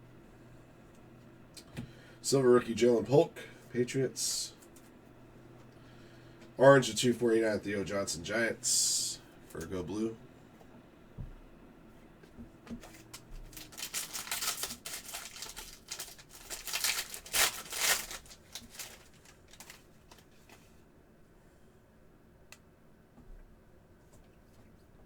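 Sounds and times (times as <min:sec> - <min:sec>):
cards and foil wrapper rustling: 0:12.8 - 0:20.7.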